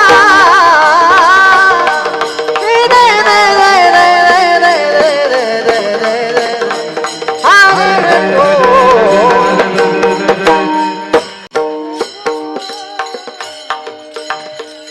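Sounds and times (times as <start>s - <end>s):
harmonium notes: 0.0s - 14.9s
tabla strikes: 0.0s - 14.9s
person singing wavering line: 7.5s - 14.9s.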